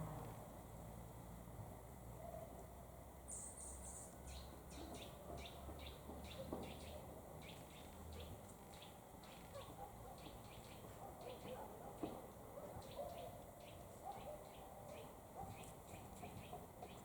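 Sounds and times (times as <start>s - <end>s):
small birds chirping: 3.3s - 12.1s, 12.7s - 17.0s.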